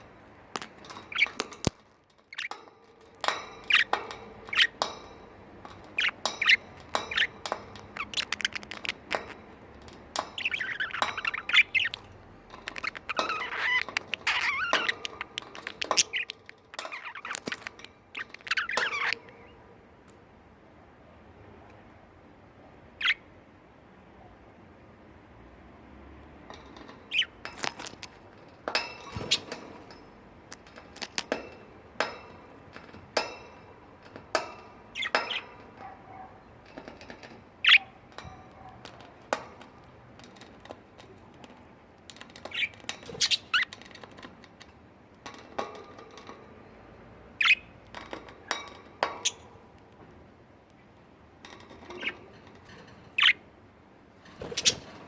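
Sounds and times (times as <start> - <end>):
budgerigars chirping and squawking: 0.6 - 9.6, 10.2 - 19.6, 23.0 - 23.2, 26.6 - 28.2, 34.1 - 39.7, 42.2 - 44.0, 47.3 - 47.8, 51.8 - 52.3, 53.1 - 53.4, 54.4 - 55.0.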